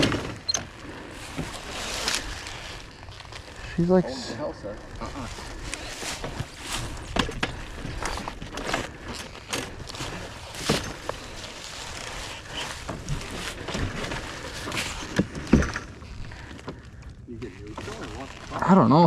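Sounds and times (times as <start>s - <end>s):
clicks and knocks of dirt bike handling: 5.7s - 11.5s.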